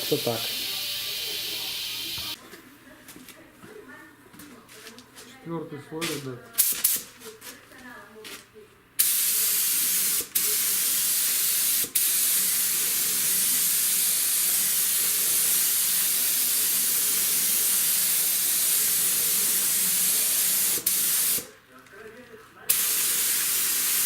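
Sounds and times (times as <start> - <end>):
spray gun hissing: 0.0 - 2.4, 9.0 - 21.5, 22.7 - 24.0.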